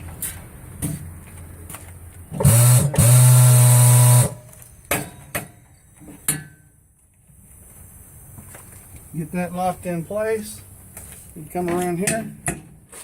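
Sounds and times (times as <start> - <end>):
tire changer motor spinning: 2.4 - 4.4.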